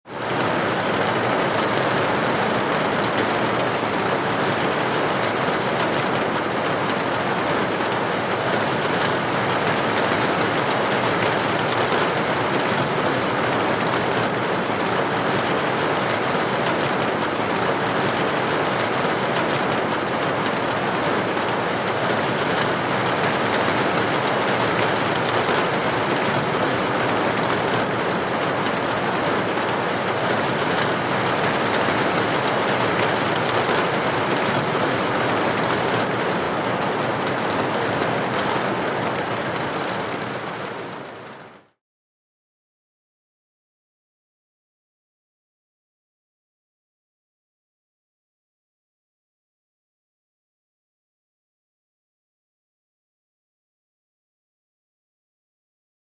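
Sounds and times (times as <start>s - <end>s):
rain on a window: 0.0s - 41.8s.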